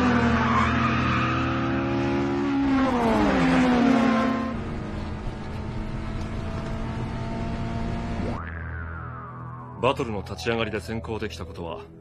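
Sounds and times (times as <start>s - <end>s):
racing car engines: 0.0s - 8.4s.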